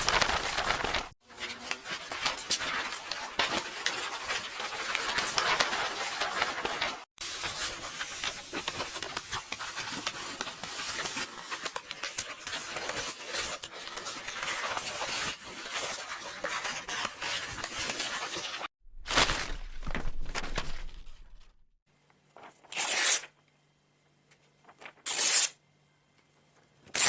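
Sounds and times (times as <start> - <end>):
book pages rustling: 0.0 - 21.5.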